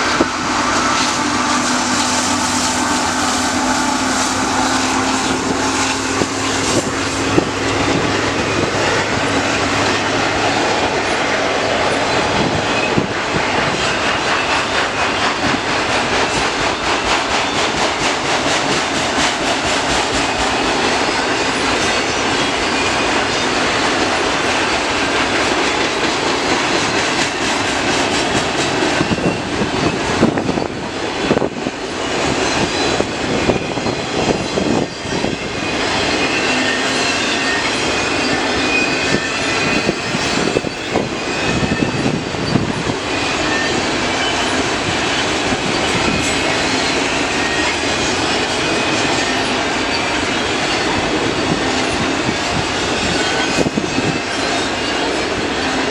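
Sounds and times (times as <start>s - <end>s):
freight train wheels clattering: 0.0s - 55.9s.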